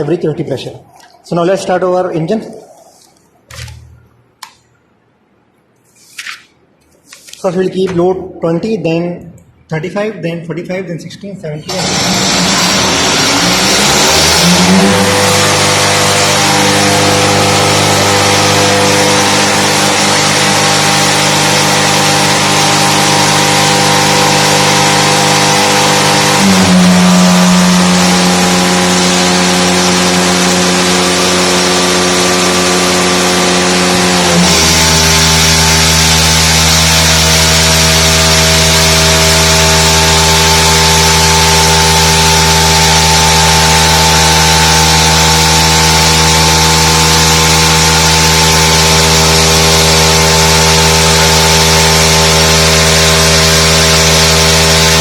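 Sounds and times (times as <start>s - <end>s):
two-stroke engine running: 11.7s - 55.0s.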